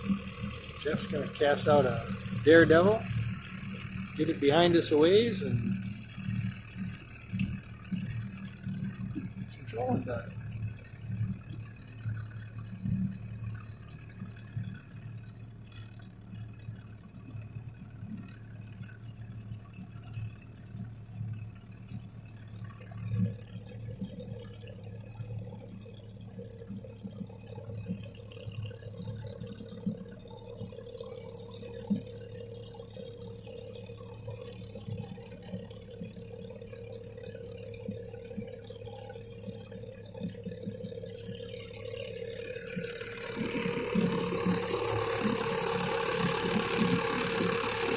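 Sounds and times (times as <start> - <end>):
boat motor humming: 0.0 - 47.9
water splashing against hull: 0.0 - 47.9
high-pitched whine: 40.6 - 47.9.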